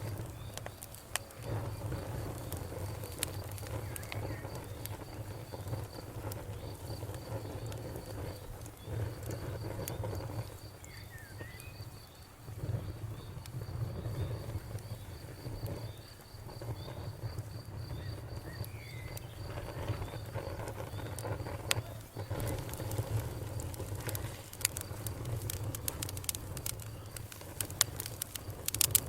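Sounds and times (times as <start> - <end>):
campfire burning and crackling: 0.0 - 29.0
crickets chirping: 0.0 - 29.0.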